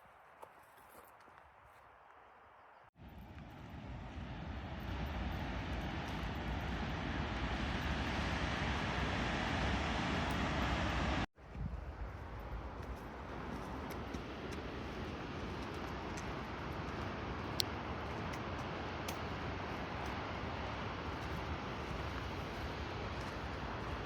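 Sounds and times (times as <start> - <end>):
waterfall rushing water: 4.8 - 11.3.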